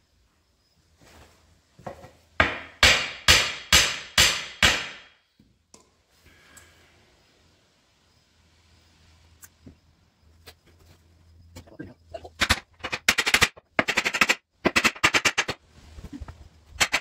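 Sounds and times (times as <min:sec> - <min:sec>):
hammer striking steel wheel: 0:02.4 - 0:05.1.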